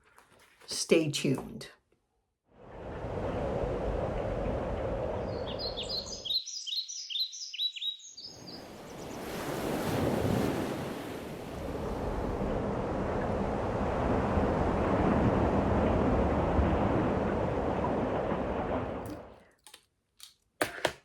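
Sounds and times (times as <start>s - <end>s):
wind: 2.5s - 20.6s
waves rushing: 2.6s - 6.2s, 8.3s - 19.3s
bird chirping: 5.2s - 9.2s.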